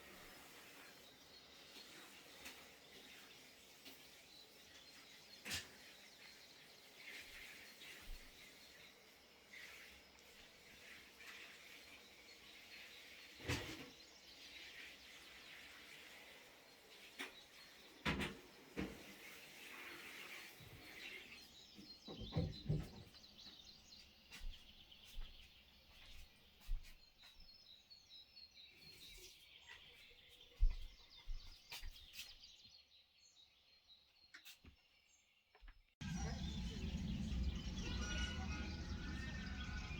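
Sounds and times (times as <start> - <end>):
birds singing and chirping: 20.8 - 25.5, 36.0 - 39.9.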